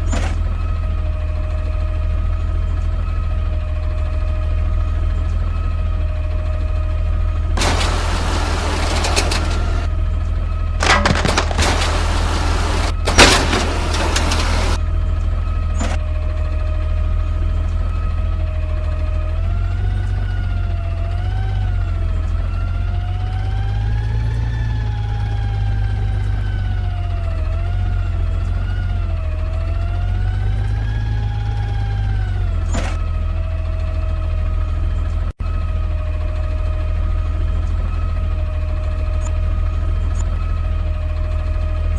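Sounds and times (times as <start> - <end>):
clattering with sharp cracks: 7.6 - 9.9, 10.8 - 14.8
garbage truck engine running: 7.6 - 9.9, 10.8 - 14.8
short burst of noise: 7.6 - 9.9.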